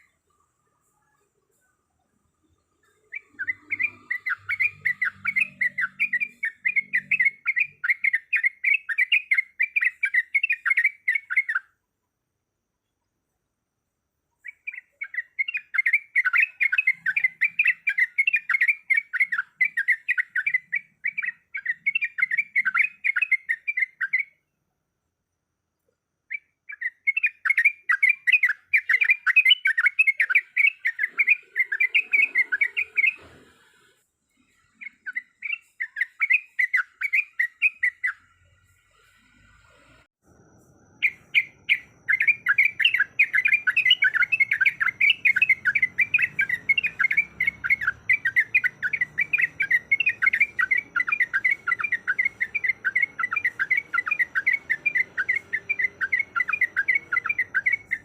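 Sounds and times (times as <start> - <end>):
bird chattering song: 2.4 - 11.8, 14.4 - 24.4, 26.3 - 33.3, 34.4 - 39.1, 41.0 - 58.0.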